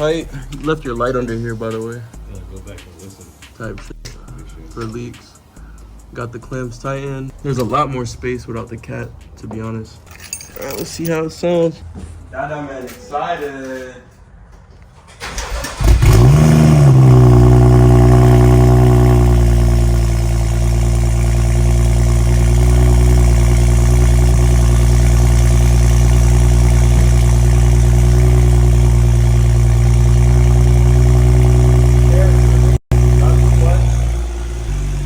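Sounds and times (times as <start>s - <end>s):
car engine starting and idling: 14.9s - 35.0s.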